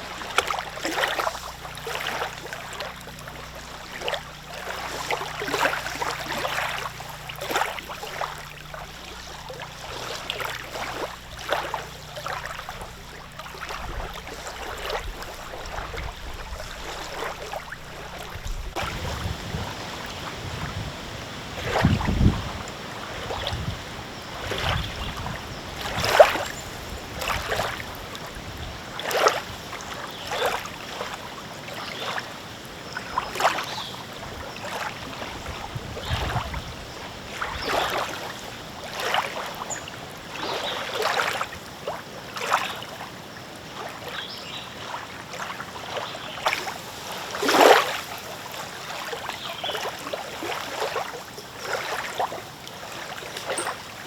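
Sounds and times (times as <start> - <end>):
lake waves lapping: 0.0 - 54.0
wind hiss: 3.1 - 29.9.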